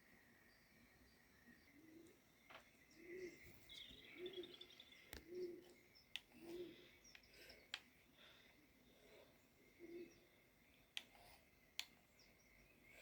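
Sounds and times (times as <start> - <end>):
bird twittering trill: 0.4 - 7.7
bird cooing: 1.7 - 2.2, 2.9 - 7.6, 9.7 - 10.4
faint clicks: 5.0 - 7.9, 10.9 - 12.3.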